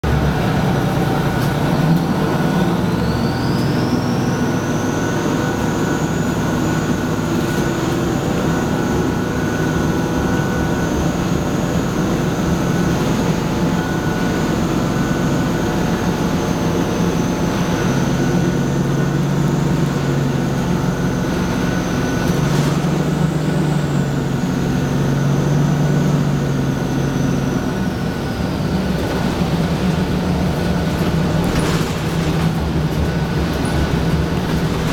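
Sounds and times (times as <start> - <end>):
diesel bus engine running: 0.0 - 34.9
high turbocharger whistle: 2.2 - 7.3.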